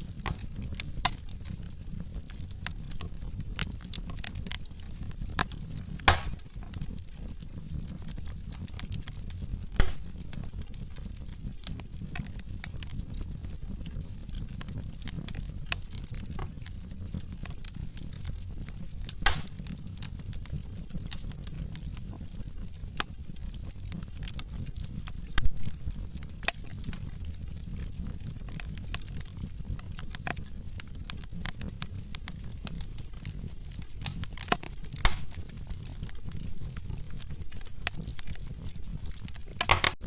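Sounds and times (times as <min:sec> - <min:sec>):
logs crackling in fireplace: 0:00.0 - 0:40.0
low rumble of flames: 0:00.0 - 0:40.0
loud wood pops: 0:05.4 - 0:06.5, 0:09.8 - 0:10.2, 0:19.2 - 0:19.6, 0:34.0 - 0:35.4, 0:39.6 - 0:40.0.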